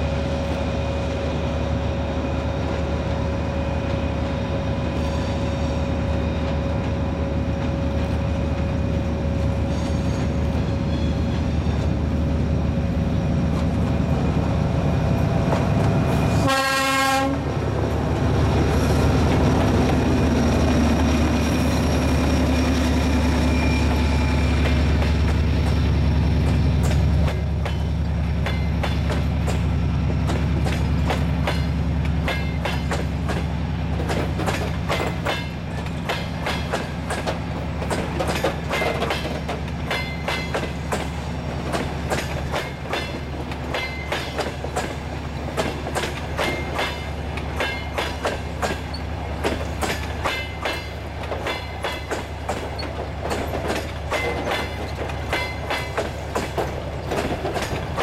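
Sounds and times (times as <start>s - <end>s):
diesel locomotive engine drone: 0.0s - 58.0s
train wheels clicking over rail joints: 17.7s - 58.0s.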